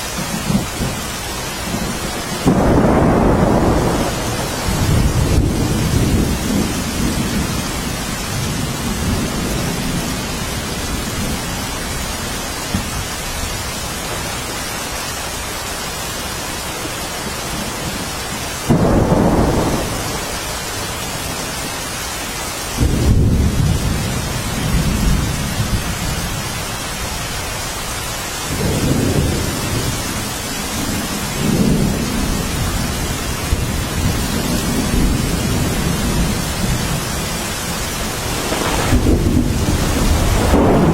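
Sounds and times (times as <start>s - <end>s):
steady rain: 0.0s - 40.9s
thunder rolling: 0.2s - 13.0s, 18.6s - 21.4s, 33.5s - 40.9s
sharp thunder peal: 1.8s - 7.6s, 37.8s - 40.9s.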